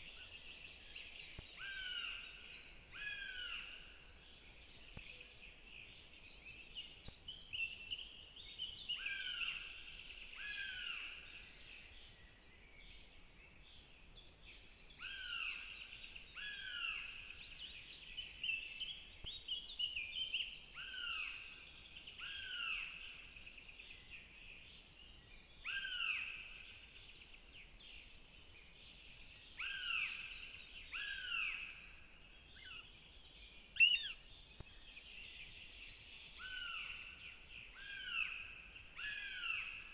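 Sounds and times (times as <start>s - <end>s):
faint high bird chirps: 24.9s - 39.9s.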